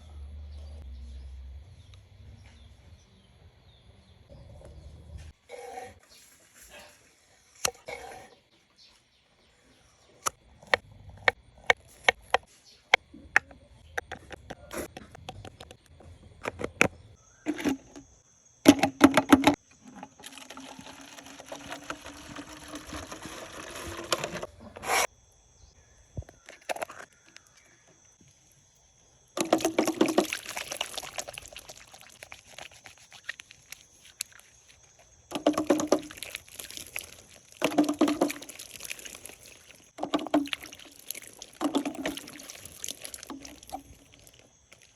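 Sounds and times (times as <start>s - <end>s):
containers clicking and knocking: 13.0s - 24.9s, 29.4s - 44.9s
water pouring into a container: 19.8s - 24.5s, 29.4s - 34.5s, 35.3s - 44.9s.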